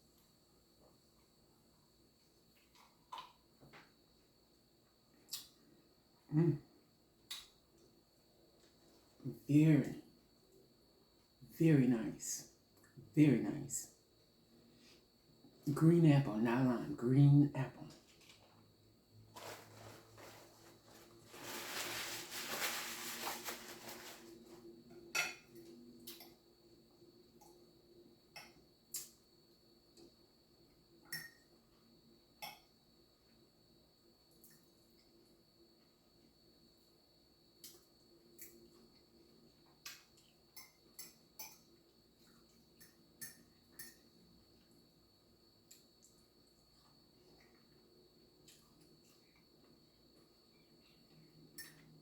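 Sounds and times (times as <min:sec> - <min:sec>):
cutlery clinking on a plate: 0:25.1 - 0:25.6
chewing and handling food: 0:37.6 - 0:51.9.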